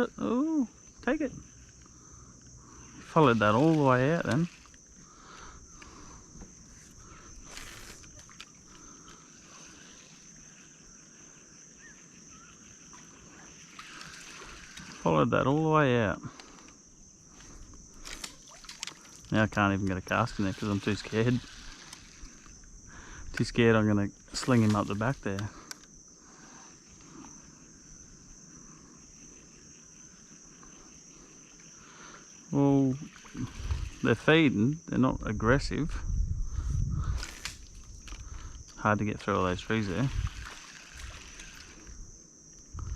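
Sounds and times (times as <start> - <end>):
high-pitched insect drone: 0.0 - 42.9
faint clicks: 24.2 - 26.0.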